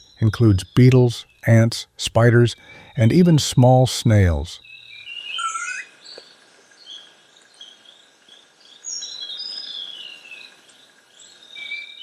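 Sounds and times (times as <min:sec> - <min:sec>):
forest birds chirping: 0:00.0 - 0:12.0
soft forest ambience hiss: 0:00.0 - 0:12.0.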